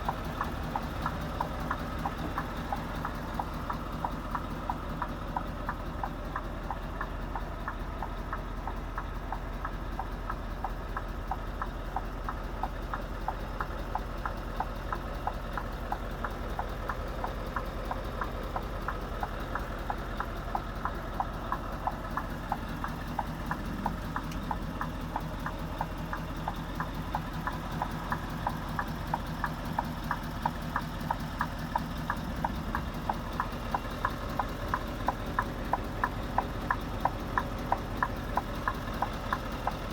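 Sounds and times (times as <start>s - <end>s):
diesel engine idling: 0.0s - 39.9s
sharp regular ticking: 0.0s - 39.9s.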